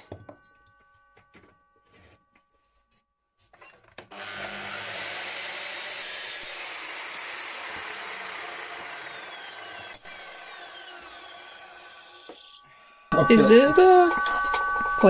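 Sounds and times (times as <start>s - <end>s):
power saw cutting steel: 4.1s - 15.0s.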